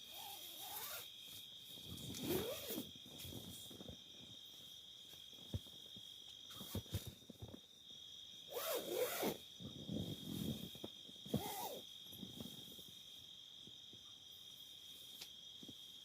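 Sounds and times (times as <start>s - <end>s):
zipper pulled: 0.1s - 1.1s, 1.9s - 2.9s, 8.5s - 9.4s, 11.3s - 11.8s.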